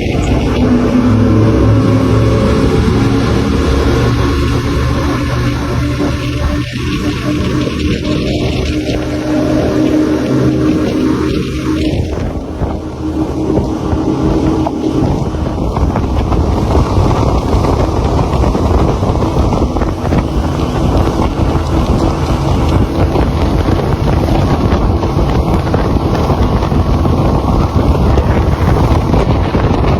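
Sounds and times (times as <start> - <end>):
boat engine droning: 0.0 - 29.9
wind on microphone: 0.0 - 29.9.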